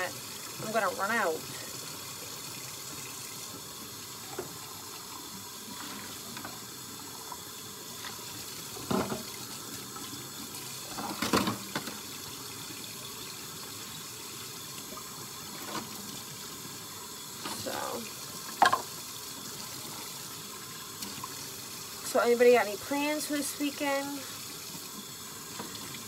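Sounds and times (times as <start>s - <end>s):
tap running into sink: 4.2s - 4.7s, 7.2s - 9.5s, 10.9s - 12.1s, 18.4s - 19.0s
dishes and utensils knocking: 18.6s - 18.9s.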